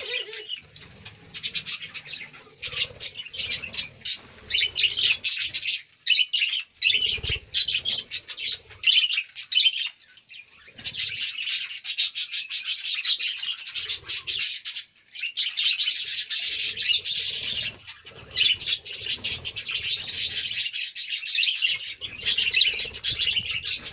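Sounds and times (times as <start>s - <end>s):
pigeon cooing: 0.0s - 5.8s, 6.8s - 9.2s, 16.4s - 20.7s, 21.5s - 23.9s
budgerigars chattering: 0.0s - 10.0s, 10.6s - 23.9s.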